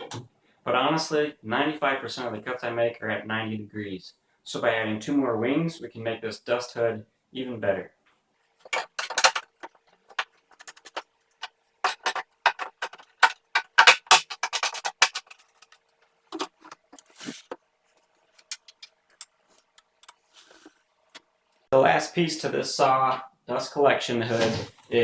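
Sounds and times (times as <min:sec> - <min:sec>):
tools and parts clicking: 0:08.6 - 0:20.3.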